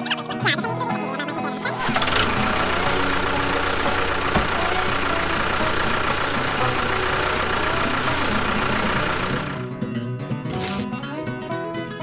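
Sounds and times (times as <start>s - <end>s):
motor running steadily: 1.8s - 9.8s.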